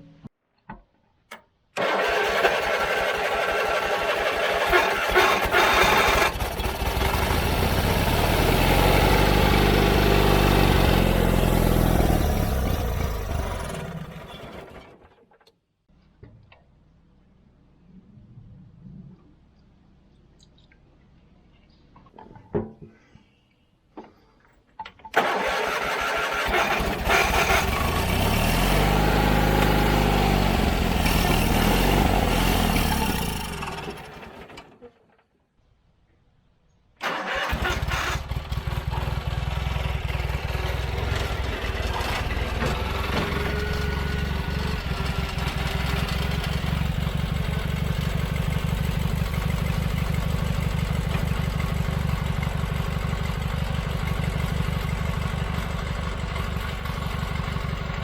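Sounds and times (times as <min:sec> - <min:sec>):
riding mower engine starting: 0:01.3 - 0:15.6, 0:24.8 - 0:35.3, 0:37.0 - 0:58.0.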